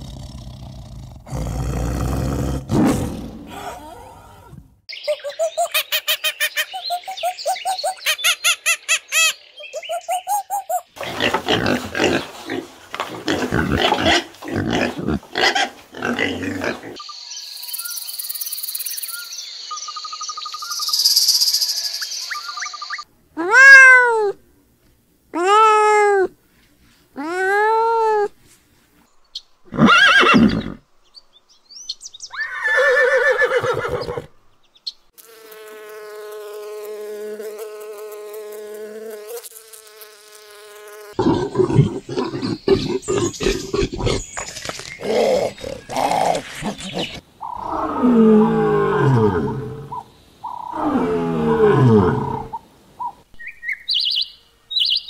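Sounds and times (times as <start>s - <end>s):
cat meowing: 23.4s - 24.4s
bumblebee buzzing: 35.2s - 42.7s
harsh animal calling: 41.2s - 52.6s.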